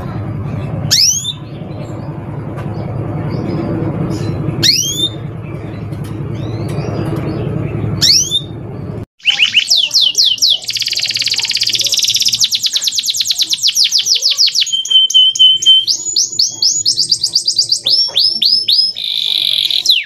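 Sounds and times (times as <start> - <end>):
steady low rumble: 0.0 - 9.1
canary singing trills: 0.3 - 20.0
downward-sweeping bird calls: 0.9 - 1.9, 3.2 - 8.6, 9.2 - 20.0.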